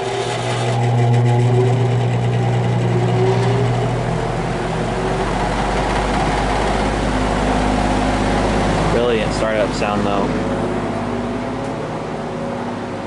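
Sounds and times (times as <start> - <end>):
fan motor hum: 0.0 - 13.0
rush of air from fan blades: 3.0 - 13.0.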